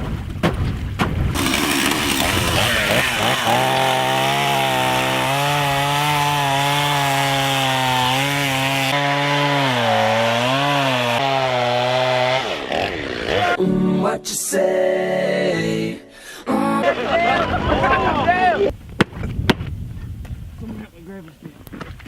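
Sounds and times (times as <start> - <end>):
chainsaw running at high speed: 1.4 - 13.6.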